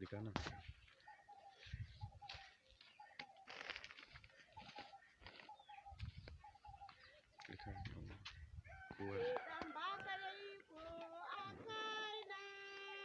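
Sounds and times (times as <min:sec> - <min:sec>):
faint bird calls: 0:00.4 - 0:09.8.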